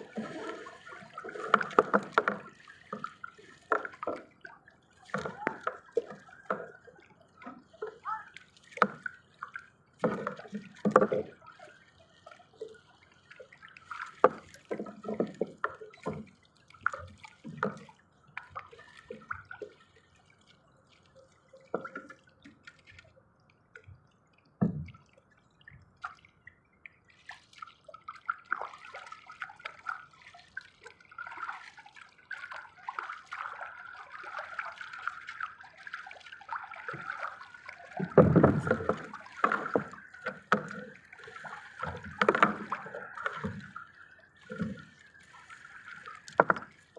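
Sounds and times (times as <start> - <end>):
water dripping and splashing: 0.0 - 46.9.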